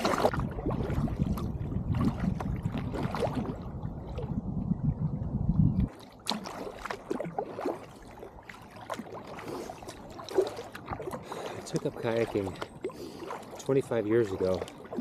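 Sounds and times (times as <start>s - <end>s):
paddle splashing and dripping water: 0.0s - 15.0s
low rumble: 0.3s - 5.9s.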